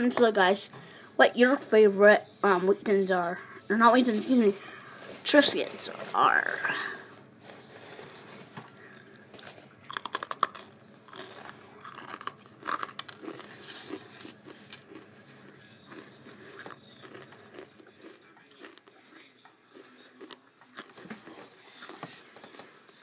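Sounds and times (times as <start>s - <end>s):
cracker crunching: 7.0s - 23.0s.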